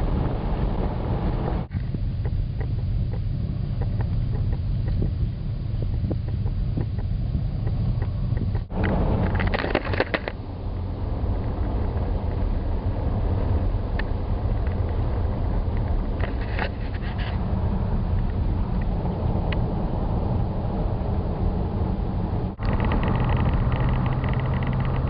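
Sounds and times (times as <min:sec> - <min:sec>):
vehicle driving rumble: 0:00.0 - 0:25.0
rattling: 0:22.6 - 0:25.0.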